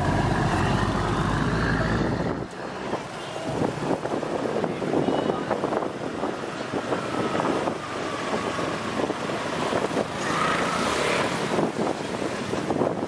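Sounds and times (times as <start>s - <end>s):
motorbike engine: 0.0s - 2.6s
wind buffeting microphone: 0.0s - 10.2s, 11.3s - 13.0s
road traffic: 0.0s - 13.0s.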